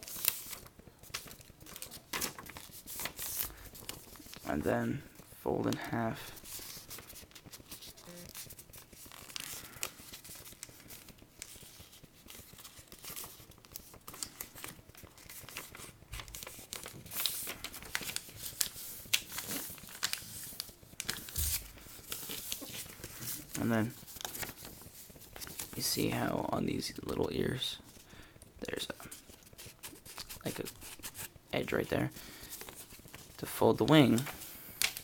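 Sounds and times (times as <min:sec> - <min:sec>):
paper crease crackles: 0:00.0 - 0:35.0
paper rustling and crinkling: 0:00.0 - 0:35.0.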